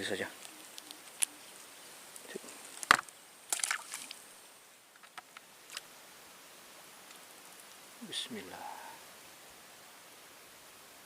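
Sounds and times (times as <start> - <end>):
fishing gear clicks and knocks: 4.9 - 5.8.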